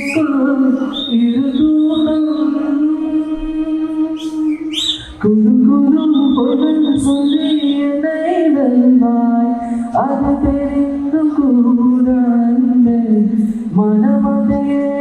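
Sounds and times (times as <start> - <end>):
beatboxed thumps: 3.3 - 7.9, 9.9 - 11.2, 13.6 - 15.0.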